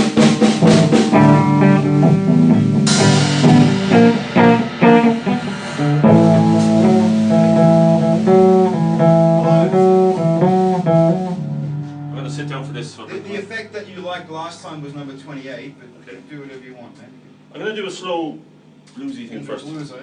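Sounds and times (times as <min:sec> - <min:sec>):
blues guitar riff: 0:00.0 - 0:15.8.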